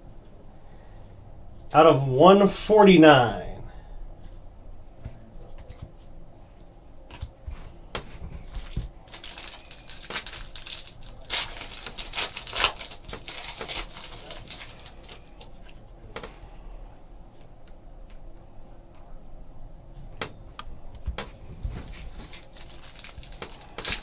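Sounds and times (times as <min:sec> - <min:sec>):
card packs crinkling and rustling: 0:08.0 - 0:16.3, 0:21.2 - 0:24.0.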